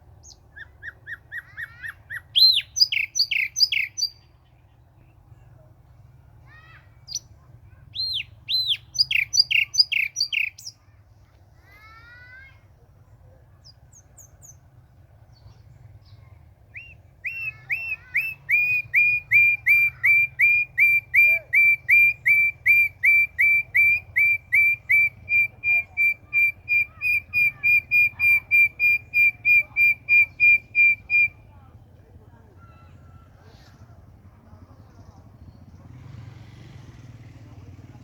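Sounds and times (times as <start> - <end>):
bird whistled calls: 0.2 - 4.3, 7.9 - 10.8, 16.7 - 31.5.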